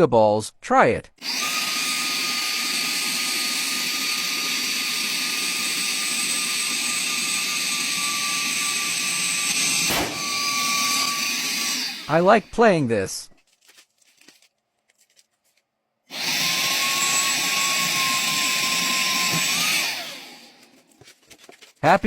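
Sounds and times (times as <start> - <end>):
handheld vacuum blowing air: 1.2 - 12.4, 16.1 - 20.8.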